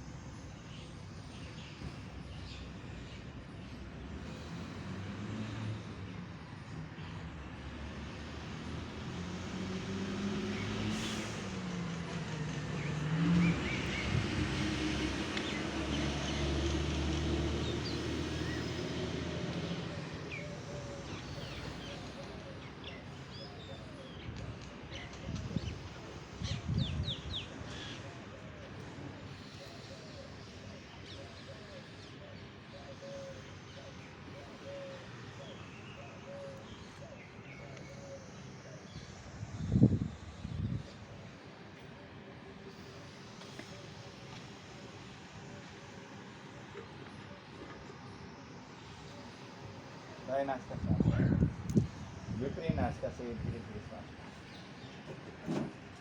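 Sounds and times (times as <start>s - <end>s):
vehicle engine passing by: 4.3s - 6.2s, 7.6s - 24.0s
birds chirping: 12.7s - 41.9s.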